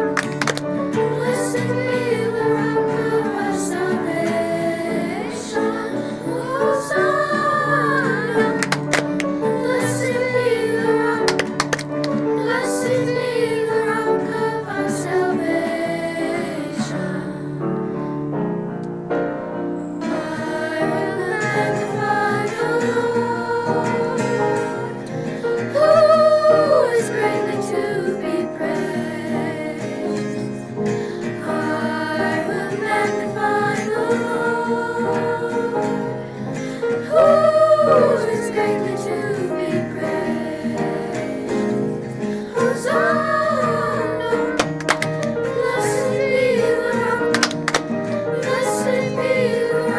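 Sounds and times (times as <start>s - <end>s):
instrumental accompaniment: 0.0s - 1.3s, 41.3s - 48.6s
choir singing: 0.0s - 49.9s.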